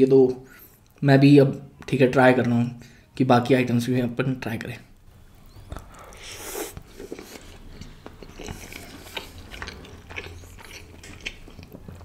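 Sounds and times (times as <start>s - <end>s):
person chewing with wet smacks: 5.4s - 12.0s.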